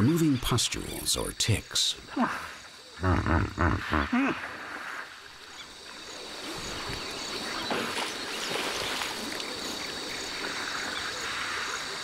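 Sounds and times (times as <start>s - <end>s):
water sloshing and splashing: 4.4s - 12.0s.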